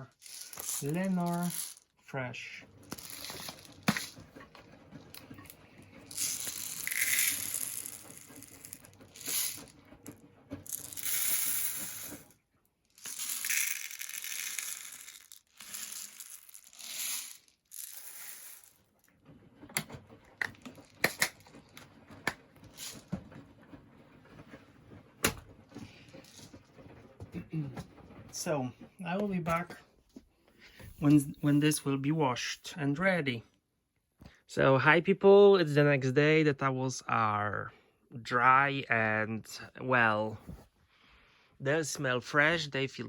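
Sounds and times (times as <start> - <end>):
small pellets pouring: 0.0 - 1.8, 2.8 - 4.2, 5.4 - 9.7, 10.6 - 12.3, 12.9 - 18.8, 22.7 - 23.1.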